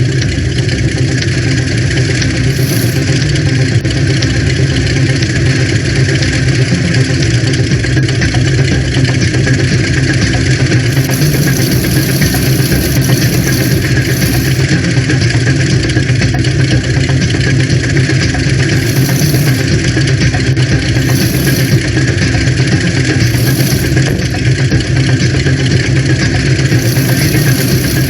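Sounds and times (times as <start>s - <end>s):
vehicle engine running: 2.4s - 3.4s, 10.9s - 14.7s, 18.8s - 19.8s, 20.9s - 22.0s, 23.2s - 24.8s, 26.7s - 28.0s.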